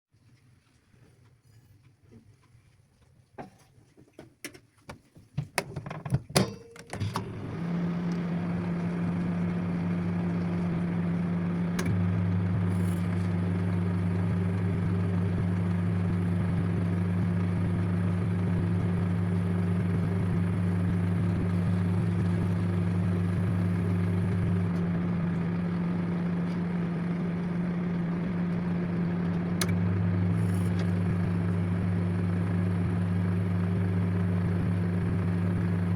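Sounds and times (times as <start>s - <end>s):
microwave clicks and knocks: 5.4s - 7.3s
microwave oven humming: 6.4s - 35.9s.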